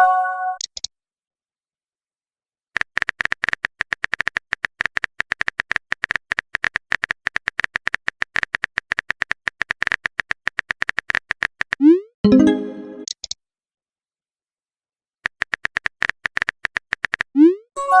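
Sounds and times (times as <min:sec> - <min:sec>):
phone keyboard clicks: 0:02.8 - 0:11.8, 0:15.2 - 0:17.3.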